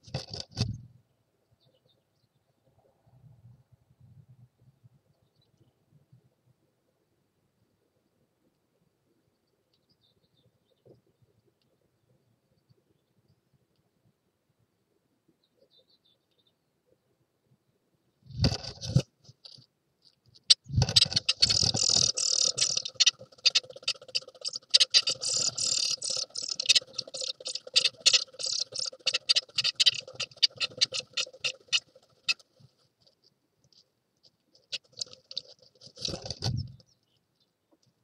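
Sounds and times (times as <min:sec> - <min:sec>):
scratching and rustling in nest: 0:00.0 - 0:00.8, 0:18.3 - 0:19.6, 0:20.4 - 0:33.9, 0:34.5 - 0:36.8
wings fluttering: 0:00.0 - 0:00.8, 0:18.3 - 0:19.7, 0:20.4 - 0:33.8, 0:34.5 - 0:36.9.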